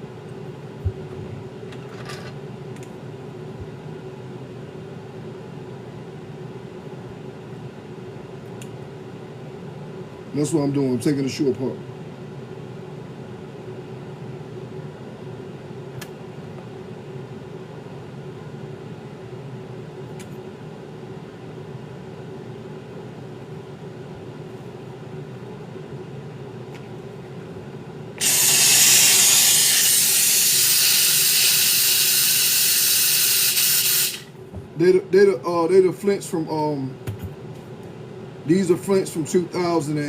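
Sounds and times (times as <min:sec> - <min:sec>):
hissing tool: 0:28.2 - 0:34.3.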